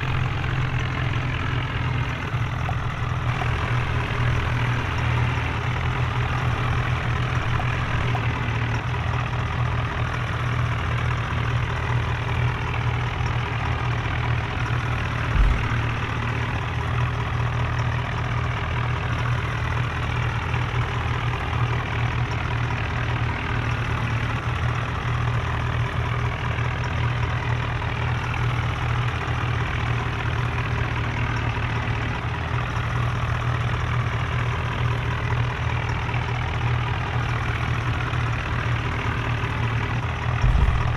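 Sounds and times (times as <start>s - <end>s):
low thump: 0.0s - 8.5s, 15.2s - 17.0s, 40.4s - 40.9s
tractor diesel engine running: 0.0s - 40.9s.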